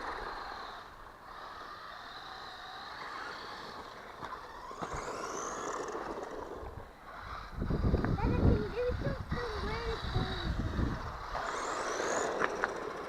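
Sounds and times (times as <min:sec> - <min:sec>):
rc car electric motor whining: 0:00.0 - 0:13.0.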